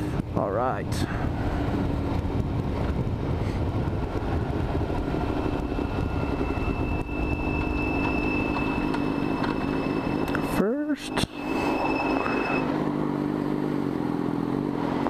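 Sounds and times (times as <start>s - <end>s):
motorcycle engine running: 1.1s - 10.6s.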